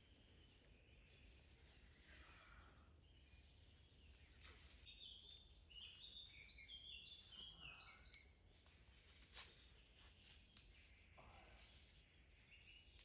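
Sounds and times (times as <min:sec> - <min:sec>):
bird whistling song: 0:04.8 - 0:08.2.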